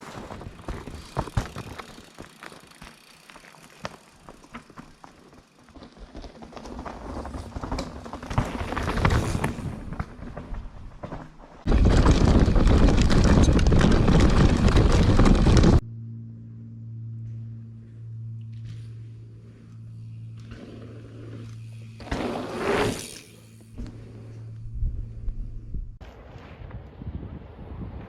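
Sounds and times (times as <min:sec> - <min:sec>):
wind rumble on microphone: 0:11.6 - 0:15.8, 0:23.8 - 0:28.0
steady low hum: 0:15.0 - 0:26.3.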